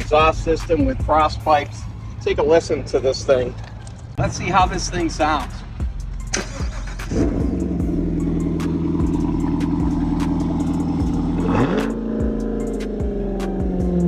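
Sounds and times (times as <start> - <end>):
car engine running and revving: 0.0 - 14.0.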